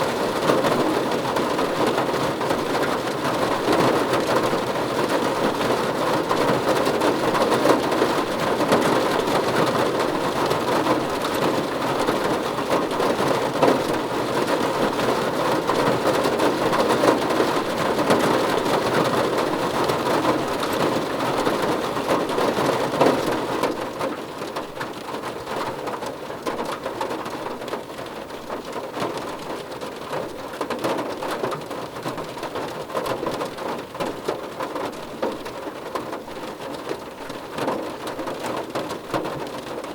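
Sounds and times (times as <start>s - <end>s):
heavy rain on a car roof: 0.0s - 39.9s.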